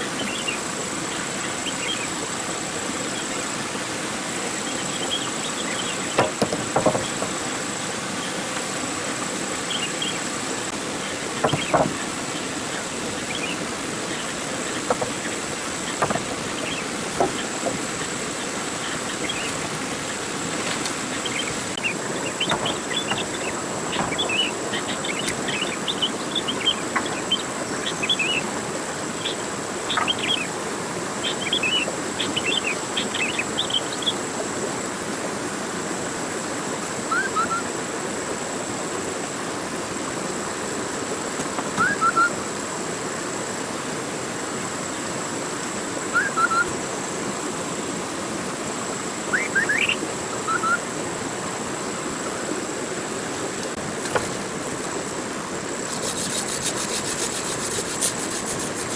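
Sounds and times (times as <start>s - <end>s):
steady background hiss: 0.0s - 58.9s
birds chirping: 4.5s - 28.6s, 29.2s - 30.6s, 41.6s - 42.4s, 46.1s - 46.8s, 49.3s - 50.9s.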